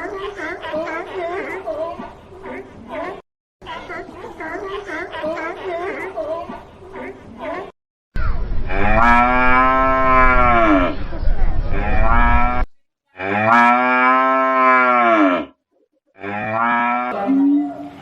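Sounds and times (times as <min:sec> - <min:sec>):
cattle mooing: 0:08.7 - 0:11.0, 0:11.7 - 0:15.5, 0:16.2 - 0:17.9.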